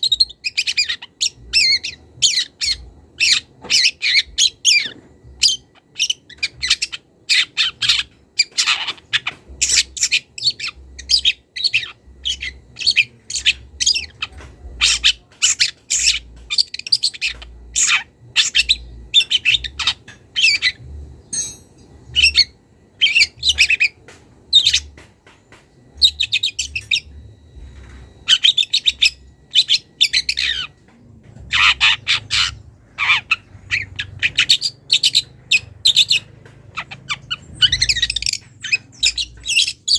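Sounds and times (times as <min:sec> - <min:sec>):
shrike chirping: 0:00.0 - 0:25.0.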